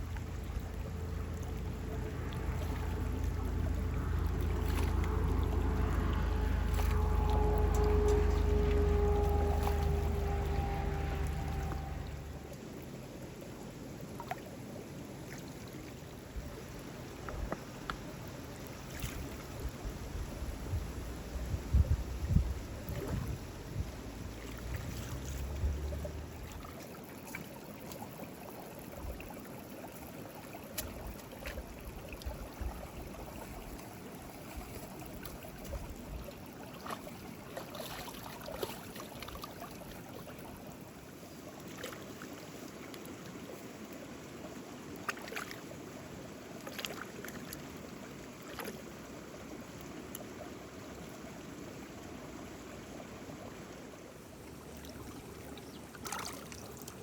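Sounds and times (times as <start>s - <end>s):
wind rumble on microphone: 0.0s - 12.7s, 16.2s - 26.8s
rushing stream water: 0.0s - 57.0s.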